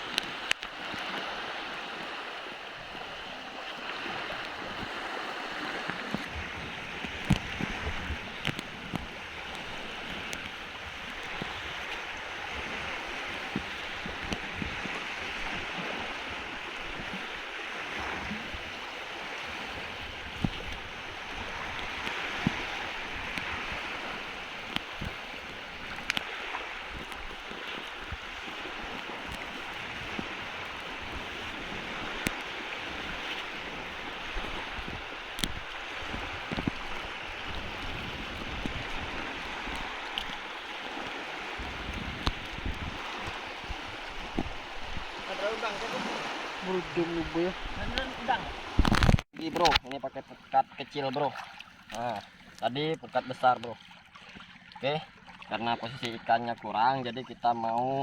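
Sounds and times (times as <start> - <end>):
shallow seawater washing: 0.0 - 58.0
sharp knocks and splashes: 3.8 - 50.0, 51.0 - 56.6
wind noise: 3.9 - 49.8.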